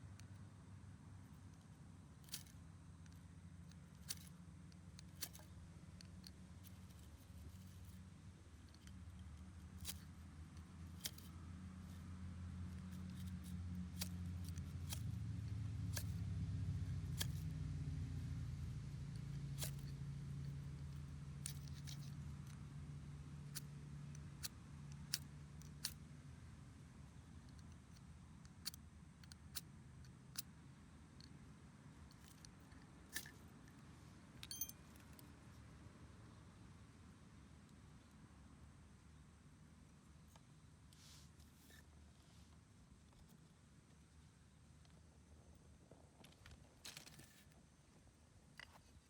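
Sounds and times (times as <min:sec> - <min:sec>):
distant engine passing by: 0:11.6 - 0:21.3.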